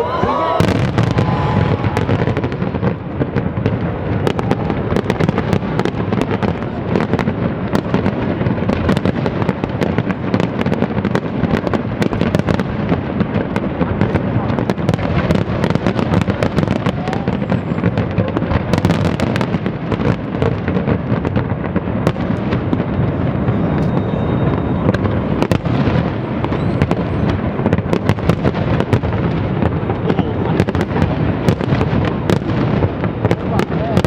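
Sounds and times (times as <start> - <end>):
fireworks bangs and crackles: 0.0 - 34.0
fireworks rumble: 0.0 - 34.0.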